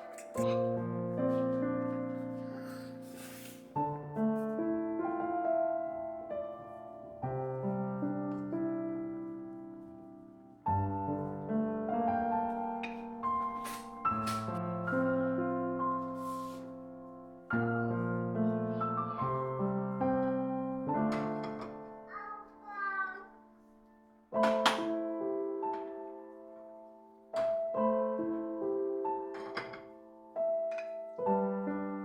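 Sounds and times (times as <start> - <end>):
slow piano music: 0.0 - 32.0.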